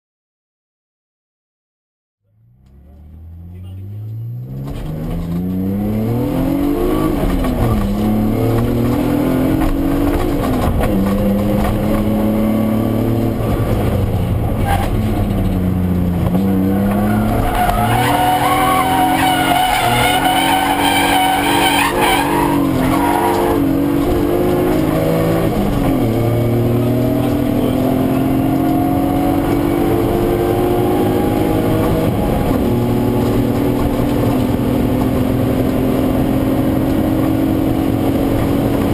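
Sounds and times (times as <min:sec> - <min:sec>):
car engine revving: 0:02.2 - 0:38.9
tyres squealing: 0:16.7 - 0:23.6.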